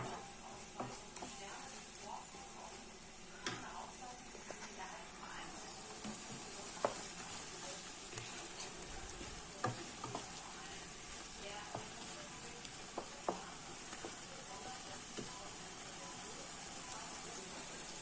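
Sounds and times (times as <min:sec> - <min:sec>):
food sizzling in oil: 0:00.0 - 0:18.0
utensil clicking against pan: 0:08.1 - 0:10.4.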